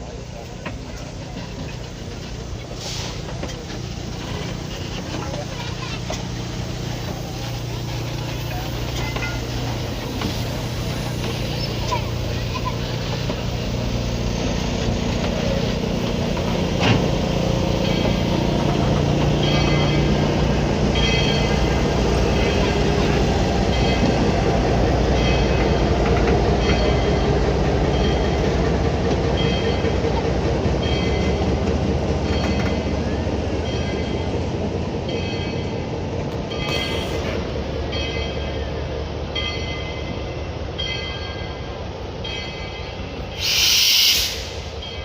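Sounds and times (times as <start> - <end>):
train rolling rumble: 0.0 - 45.0
air or steam hiss: 2.6 - 3.4, 43.3 - 44.8.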